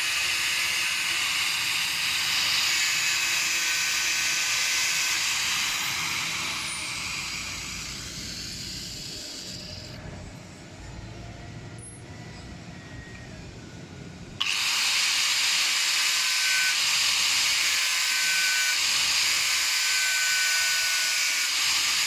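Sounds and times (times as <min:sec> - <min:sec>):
power tool winding down: 0:00.0 - 0:10.0, 0:14.4 - 0:22.0.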